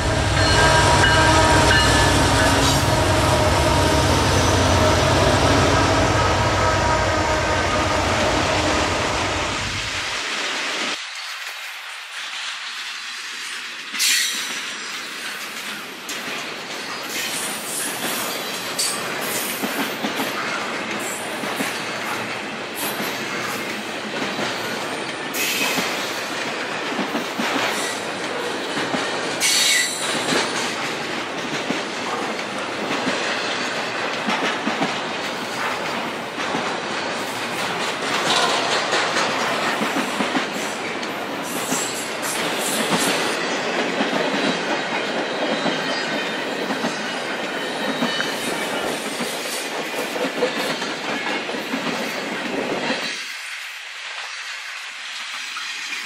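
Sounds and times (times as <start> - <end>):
wheel screeching on rail: 0.0 - 10.1
train wheels rumbling on rails: 0.0 - 56.0.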